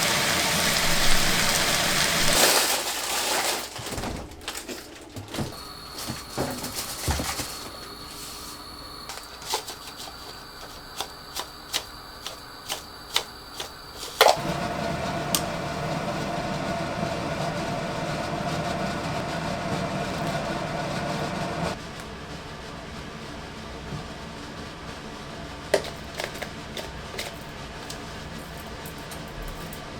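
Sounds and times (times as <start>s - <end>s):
household appliance humming: 0.0s - 2.4s, 5.5s - 21.8s.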